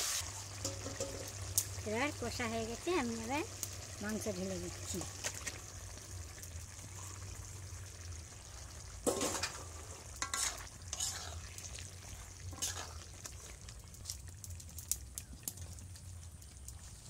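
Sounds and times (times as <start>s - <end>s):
chicken sizzling in a pan: 0.0s - 17.0s
metal spatula scraping and knocking: 0.6s - 1.2s, 9.1s - 11.4s, 12.6s - 13.0s.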